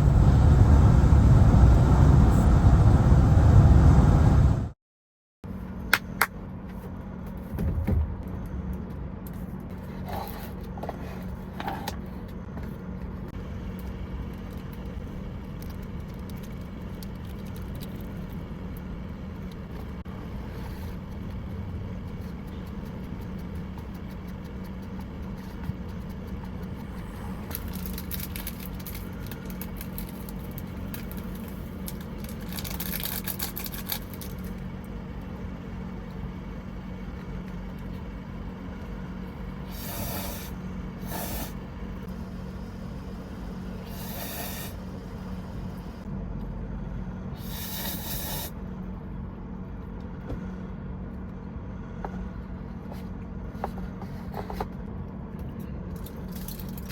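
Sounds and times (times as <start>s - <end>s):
truck engine running: 0.0s - 4.8s, 5.5s - 56.9s
short hissing: 39.6s - 41.6s, 43.8s - 45.0s, 47.4s - 48.6s.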